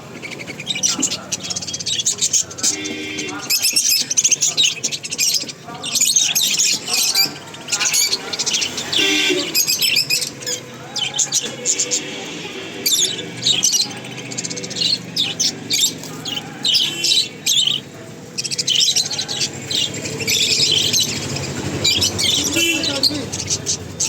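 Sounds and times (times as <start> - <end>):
cockatiels chirping: 0.1 - 24.0.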